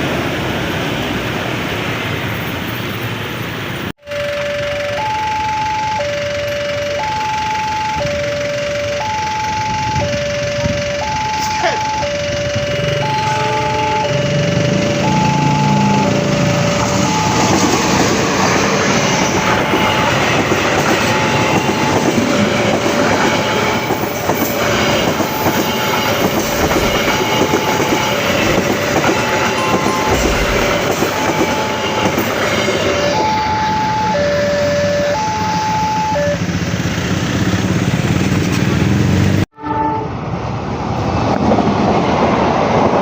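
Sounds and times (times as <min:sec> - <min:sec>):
train passing: 0:00.0 - 0:43.0
level crossing alarm chime: 0:04.0 - 0:18.0, 0:23.2 - 0:36.4.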